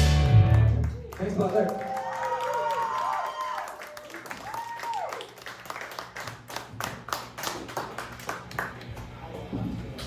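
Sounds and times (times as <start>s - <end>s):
small audience clapping: 0.3s - 9.1s.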